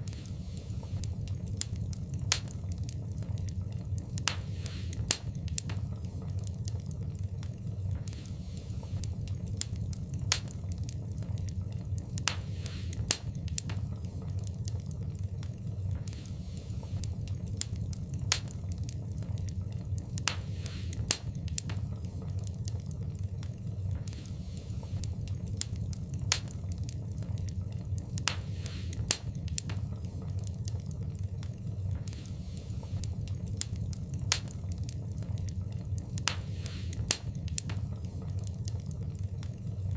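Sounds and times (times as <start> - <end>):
loud fire pops: 0.0 - 39.9
wood fire crackling: 0.0 - 39.9.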